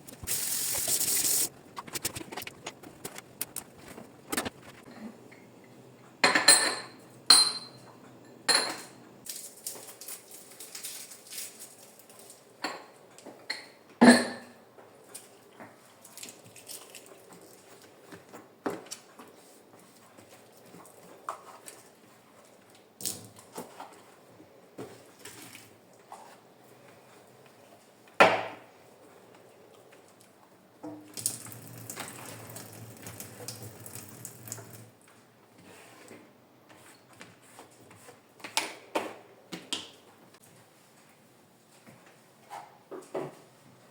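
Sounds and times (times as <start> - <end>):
objects rubbing: 0.0 - 4.9.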